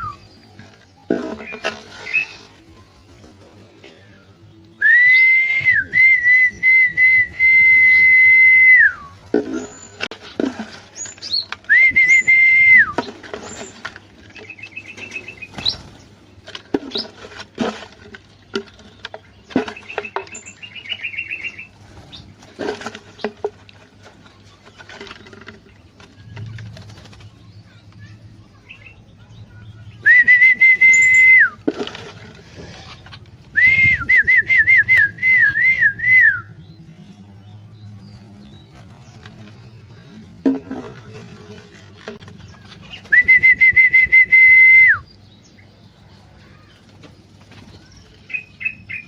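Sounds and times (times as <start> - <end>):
bird chirps: 0.0 - 3.0, 10.9 - 16.2, 18.2 - 23.4, 24.1 - 31.6, 44.9 - 49.0
person whistling: 4.8 - 9.1, 11.7 - 12.9, 30.1 - 31.6, 33.6 - 36.4, 43.1 - 45.0
wing flutters: 12.9 - 16.2, 19.5 - 28.2.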